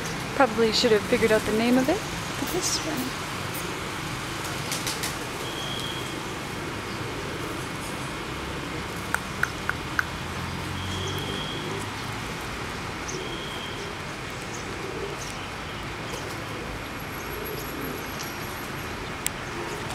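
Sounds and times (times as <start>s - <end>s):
outdoor park ambience: 0.0s - 19.9s
quick sharp ticks: 9.1s - 10.2s.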